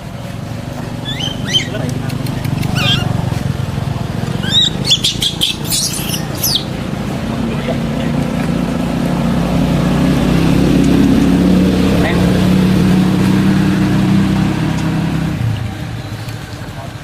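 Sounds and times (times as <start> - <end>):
low engine hum: 0.0 - 17.0
short high chirping calls: 0.8 - 3.2, 4.4 - 6.8.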